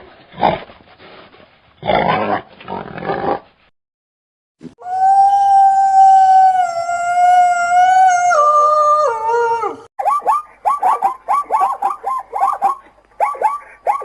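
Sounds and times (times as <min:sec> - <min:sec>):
animal howling: 0:04.8 - 0:09.9
short high yelps: 0:10.0 - 0:14.0.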